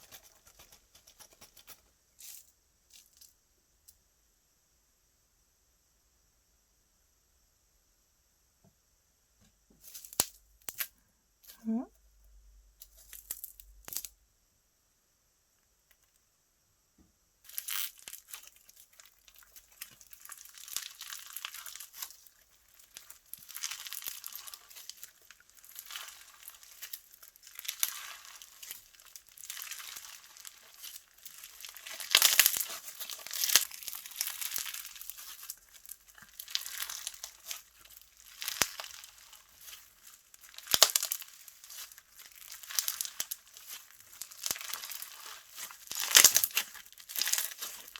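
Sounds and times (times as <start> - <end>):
slime squishing and popping: 17.5 - 47.9.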